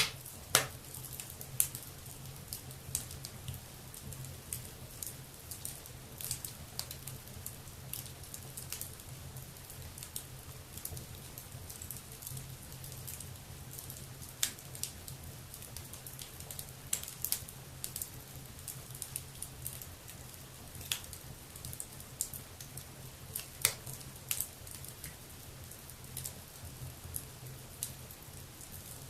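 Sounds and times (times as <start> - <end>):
wood fire crackling and popping: 0.0 - 29.0.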